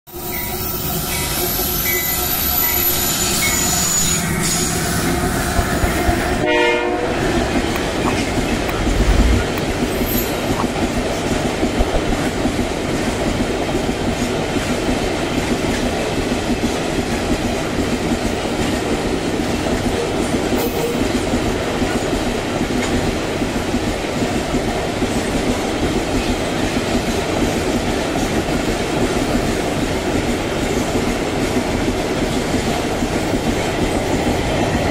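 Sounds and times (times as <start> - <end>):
train wheels rumbling on rails: 0.1 - 34.9
locomotive horn: 6.2 - 7.5.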